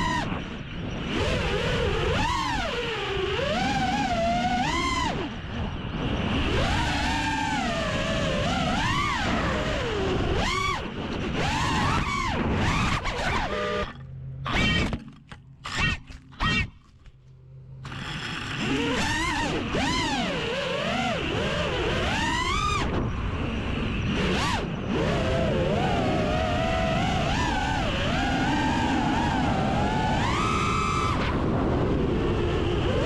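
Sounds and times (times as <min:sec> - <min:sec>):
drone motors whining: 0:00.0 - 0:33.0.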